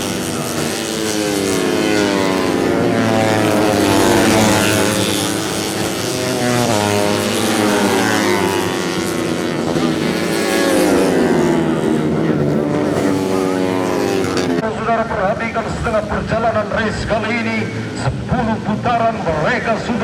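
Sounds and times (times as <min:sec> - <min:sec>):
motorcycle engines at high revs: 0:00.0 - 0:14.7.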